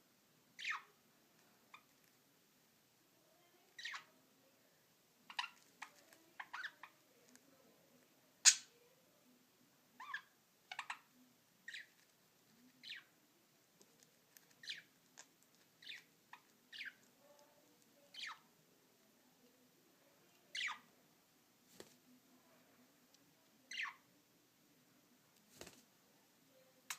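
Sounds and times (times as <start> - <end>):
budgerigars chirping and squawking: 0.6 - 0.9, 5.3 - 6.9, 10.0 - 11.1, 14.6 - 14.9, 15.8 - 17.0, 20.6 - 20.8, 23.7 - 24.0.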